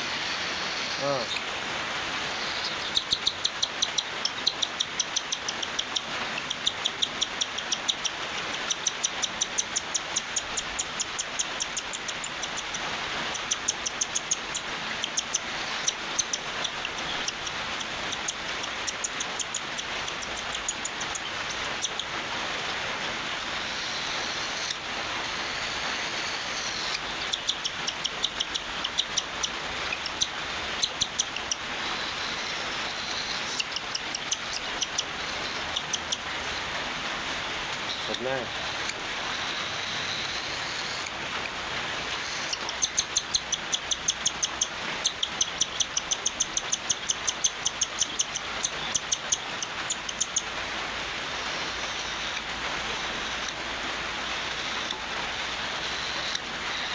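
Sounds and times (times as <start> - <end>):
steady hiss: 0.0 - 56.9
cockatiel begging chirps: 2.4 - 22.1, 26.6 - 36.2, 42.2 - 50.5.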